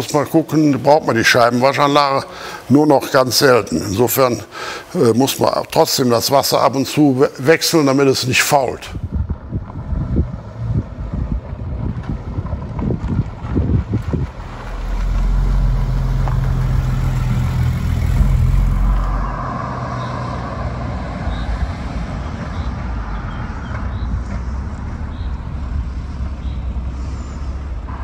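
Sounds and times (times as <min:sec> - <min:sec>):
car engine idling: 0:13.9 - 0:20.1, 0:21.1 - 0:28.0
car engine cranking: 0:14.2 - 0:19.6.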